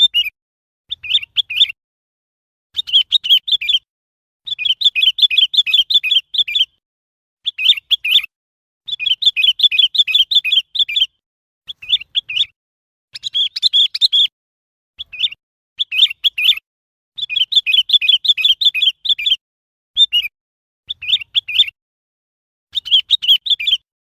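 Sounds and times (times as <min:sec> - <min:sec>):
bird chirping: 0:00.0 - 0:01.8, 0:02.8 - 0:03.9, 0:04.5 - 0:06.8, 0:07.4 - 0:08.3, 0:08.9 - 0:14.3, 0:15.0 - 0:16.6, 0:17.2 - 0:19.4, 0:20.0 - 0:20.3, 0:20.9 - 0:21.8, 0:22.7 - 0:23.9.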